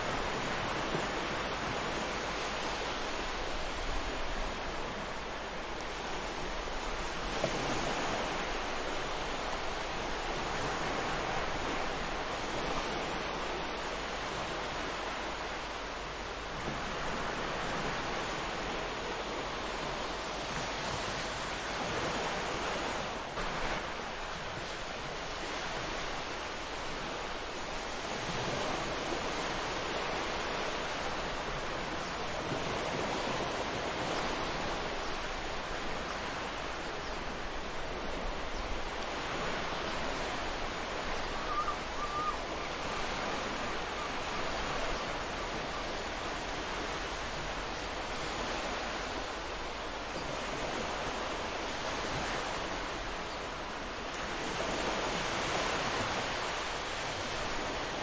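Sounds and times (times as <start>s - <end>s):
ocean surf washing on beach: 0.0s - 58.0s.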